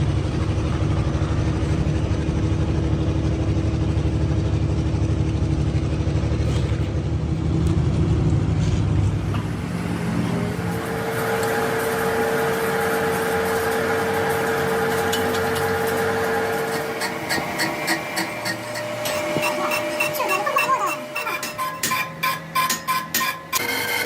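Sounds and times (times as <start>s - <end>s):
engine droning: 0.0s - 24.0s
high steady whine: 0.0s - 24.0s.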